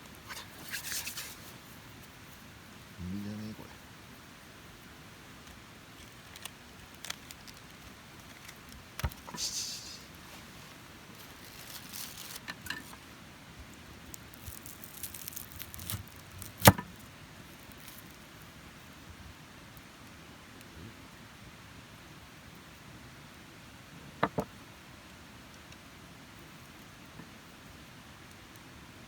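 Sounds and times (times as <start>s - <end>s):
handling clicks and rustles: 10.2s - 13.1s.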